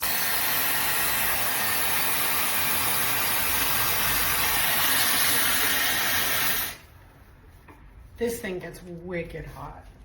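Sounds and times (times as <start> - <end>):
hair dryer brush blowing air: 0.0 - 7.0.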